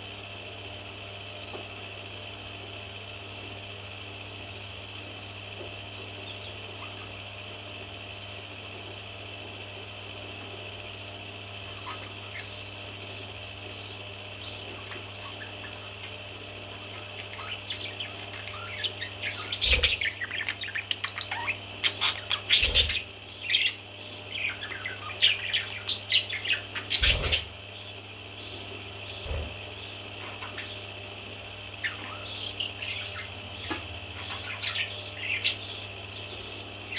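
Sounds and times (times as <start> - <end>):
steady low hum: 0.0 - 36.9
baby parrots chirping: 11.5 - 27.6, 31.8 - 33.4, 34.1 - 35.8.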